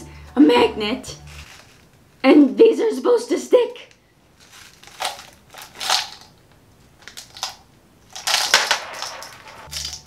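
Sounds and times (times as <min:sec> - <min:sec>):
steel balls clicking and rattling: 0:08.3 - 0:10.0.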